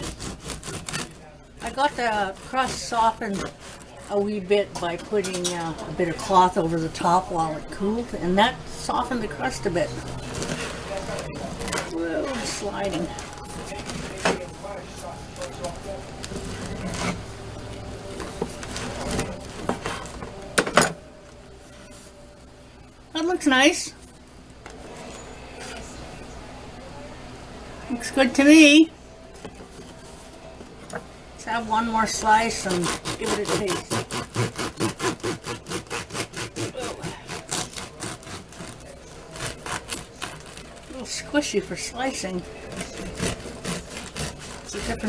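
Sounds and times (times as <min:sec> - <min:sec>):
knife sawing through bread: 0:00.0 - 0:04.5, 0:09.4 - 0:12.6, 0:16.4 - 0:17.3, 0:32.4 - 0:41.3, 0:42.4 - 0:45.0.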